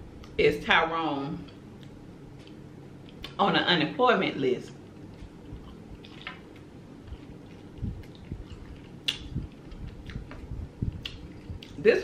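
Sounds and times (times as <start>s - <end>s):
wet chewing: 4.8s - 11.8s
soft low thumps: 7.1s - 11.8s.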